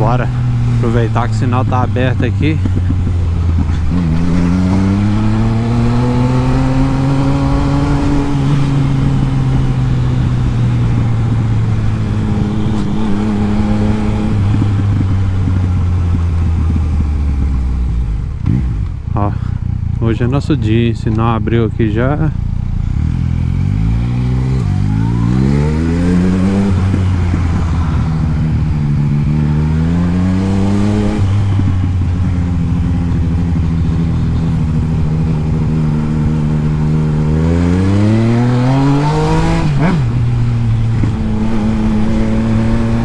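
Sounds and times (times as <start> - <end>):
motorcycle engine pulling through gears: 0.3 - 20.0.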